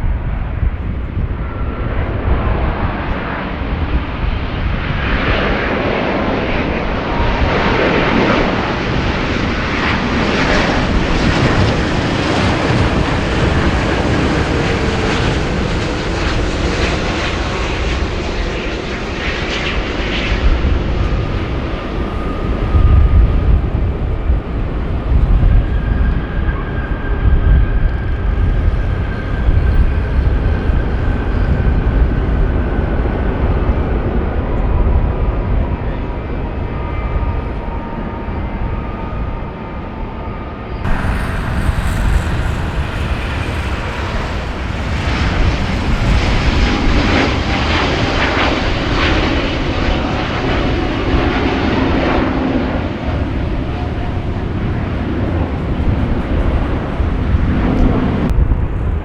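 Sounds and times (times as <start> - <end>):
jet engine rumble with whine: 0.0 - 59.0
hissy jet roar: 40.8 - 51.3.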